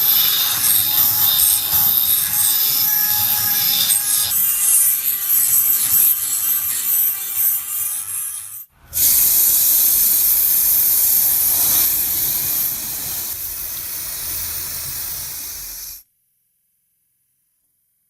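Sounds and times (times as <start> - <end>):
pressurised spray hissing: 9.0 - 16.0.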